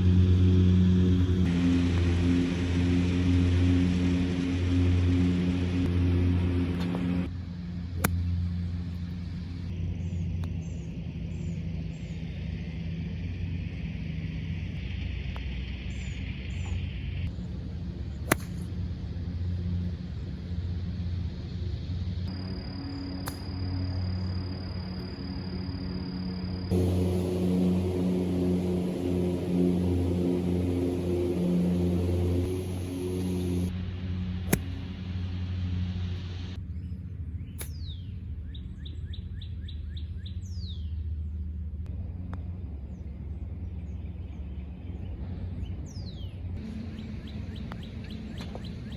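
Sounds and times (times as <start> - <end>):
steady low rumble: 0.0 - 37.4
golf club striking ball: 18.3 - 18.6
low rumble: 26.2 - 36.6
high hiss: 26.7 - 36.6.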